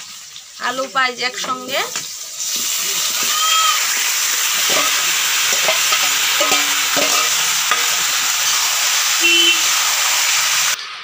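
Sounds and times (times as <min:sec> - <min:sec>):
food sizzling in hot oil: 0:00.0 - 0:11.0
metal spoon scraping and knocking wok: 0:04.5 - 0:08.4.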